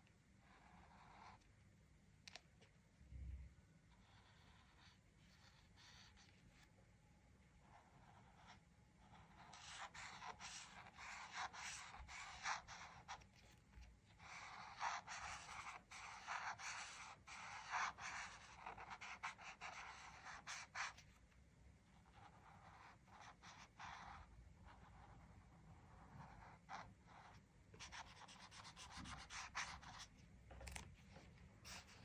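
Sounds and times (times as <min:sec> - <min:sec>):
colouring strokes on paper: 0:03.9 - 0:06.7, 0:07.6 - 0:21.2.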